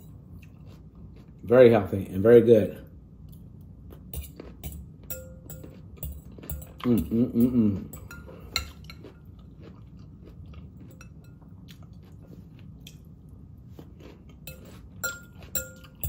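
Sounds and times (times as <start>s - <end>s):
person chewing and crunching: 0.0s - 1.5s, 3.2s - 16.0s
fork clinking on glass bowl: 4.2s - 7.1s, 7.8s - 9.3s, 14.4s - 16.0s.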